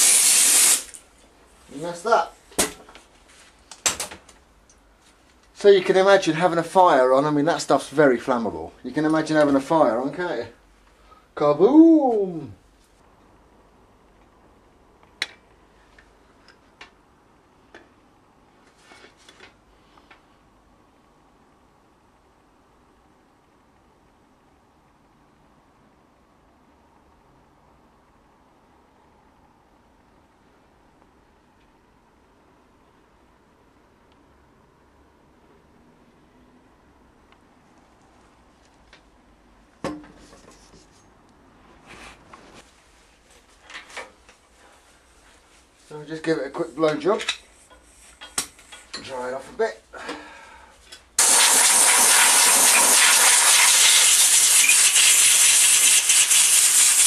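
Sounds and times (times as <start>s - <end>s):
soft rustle: 2.9s - 3.7s, 12.7s - 13.1s, 40.2s - 46.3s, 47.4s - 49.9s
light scraping and rubbing: 40.1s - 45.7s, 47.4s - 48.9s.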